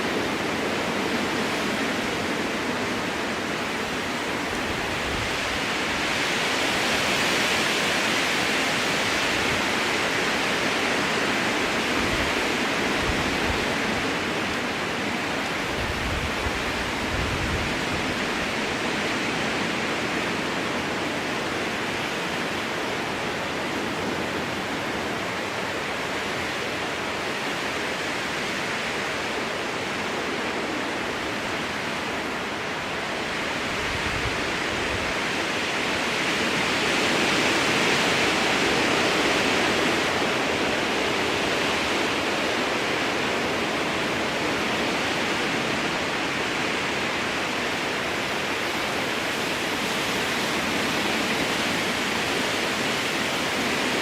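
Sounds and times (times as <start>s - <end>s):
strong wind through trees: 0.0s - 54.0s.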